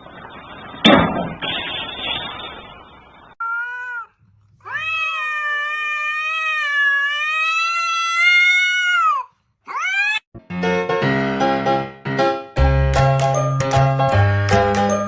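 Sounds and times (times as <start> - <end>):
cat meowing: 3.4 - 10.2.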